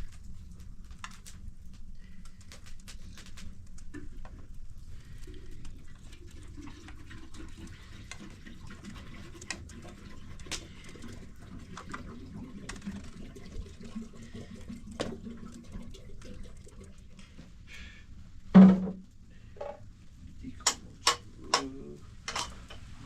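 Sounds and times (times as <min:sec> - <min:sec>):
water running and splashing: 0:00.0 - 0:17.6
sharp knocks: 0:18.6 - 0:19.0.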